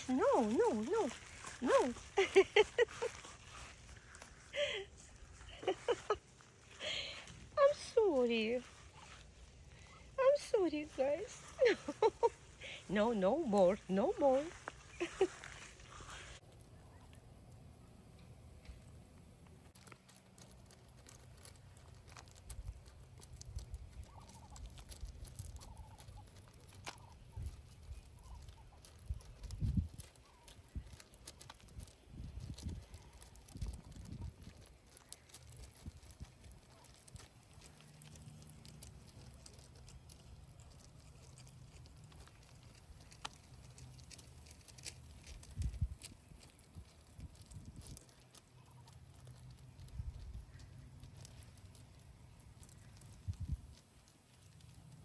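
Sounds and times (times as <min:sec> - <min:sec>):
ducks calling softly: 0:00.0 - 0:16.4
faint patter: 0:00.0 - 0:17.2, 0:19.4 - 0:55.0.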